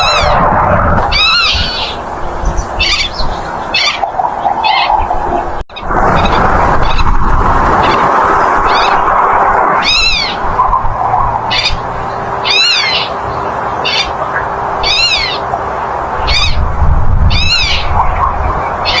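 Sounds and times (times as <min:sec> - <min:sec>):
godwit calling: 0:00.0 - 0:05.1, 0:11.5 - 0:11.8, 0:12.4 - 0:15.5, 0:16.2 - 0:16.7, 0:17.3 - 0:19.0
steady background rush: 0:00.0 - 0:19.0.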